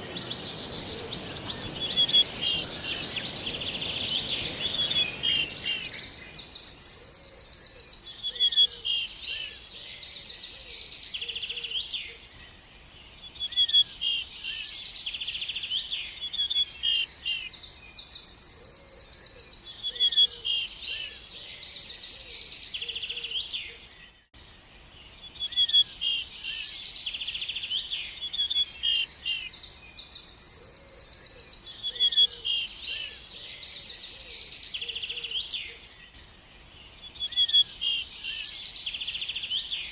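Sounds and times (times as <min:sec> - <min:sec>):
songbird singing trills: 0:00.0 - 0:12.3, 0:24.9 - 0:35.9, 0:36.6 - 0:39.9.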